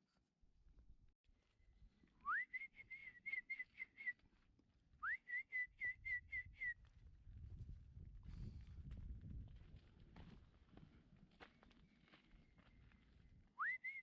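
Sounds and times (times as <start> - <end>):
bird-like whistle: 13.6 - 14.0.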